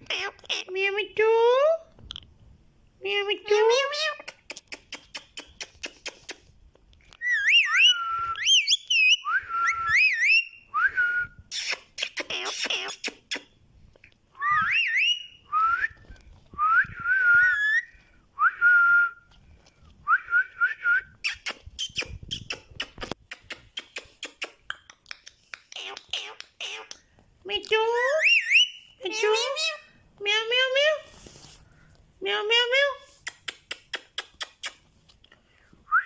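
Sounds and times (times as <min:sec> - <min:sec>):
parrot whistling: 0:07.2 - 0:10.9, 0:14.4 - 0:15.8, 0:28.2 - 0:28.8.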